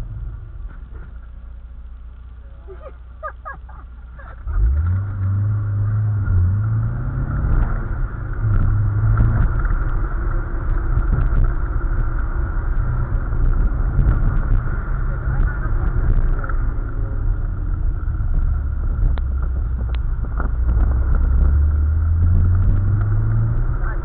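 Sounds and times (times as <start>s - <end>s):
car engine accelerating in cabin: 2.8s - 24.0s.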